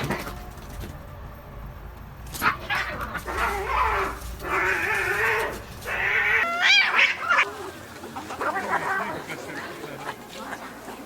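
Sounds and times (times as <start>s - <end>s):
cat yowling: 2.4s - 7.5s.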